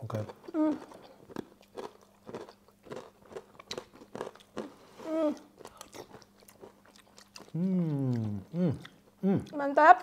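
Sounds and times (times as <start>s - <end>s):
chewing crunchy food: 0.0s - 9.6s
person humming: 5.0s - 5.5s, 7.5s - 9.5s.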